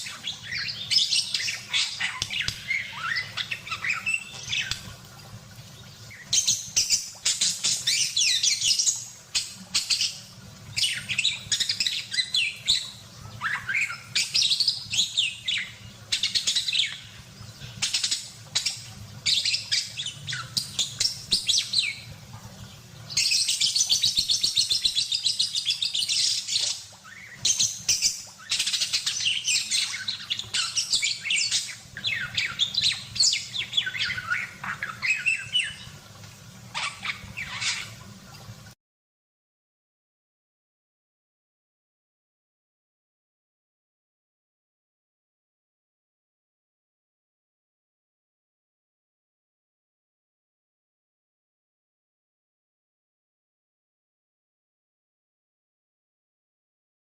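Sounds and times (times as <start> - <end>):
parakeet chattering and trilling: 0.0 - 4.9, 23.1 - 35.9, 36.7 - 38.0.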